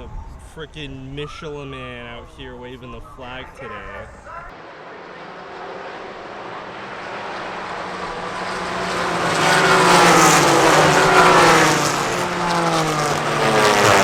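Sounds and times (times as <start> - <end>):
race cars passing at speed: 3.1 - 14.0.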